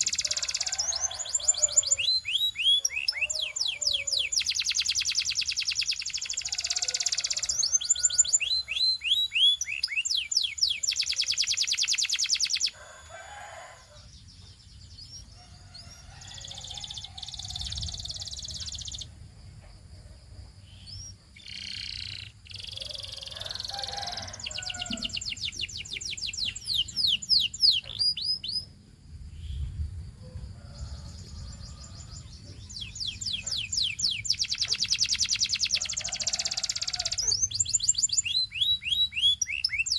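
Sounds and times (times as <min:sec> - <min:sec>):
canary singing trills and whistles: 0:00.0 - 0:14.1, 0:15.0 - 0:19.1, 0:20.8 - 0:28.7, 0:31.6 - 0:39.9.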